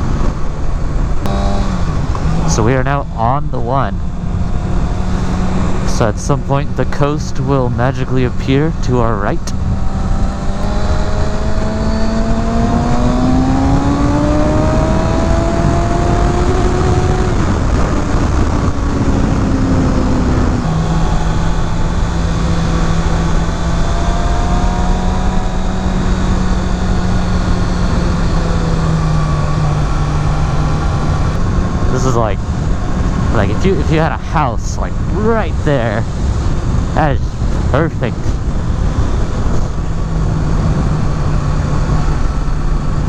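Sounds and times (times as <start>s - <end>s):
motorcycle engine revving: 1.0s - 7.2s, 8.1s - 43.0s
wind rush: 9.2s - 43.0s.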